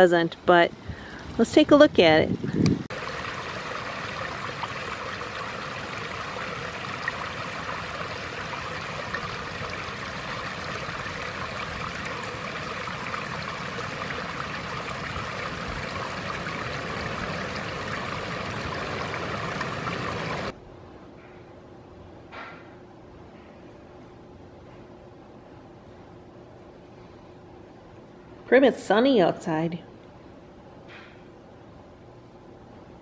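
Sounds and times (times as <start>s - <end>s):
water rushing over rock ledge: 2.9s - 20.5s.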